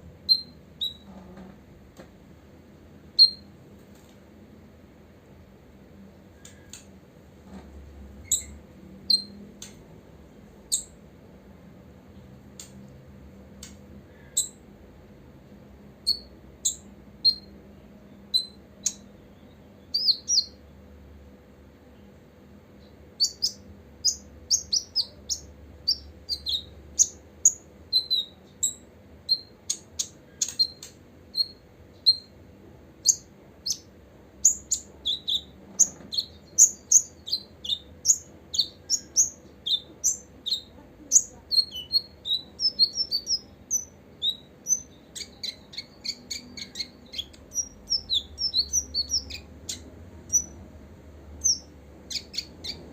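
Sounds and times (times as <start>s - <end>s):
bird calling in high chirps: 0.3s - 1.1s, 3.2s - 3.5s, 18.3s - 20.6s, 23.2s - 32.3s, 33.0s - 50.6s, 51.4s - 52.8s.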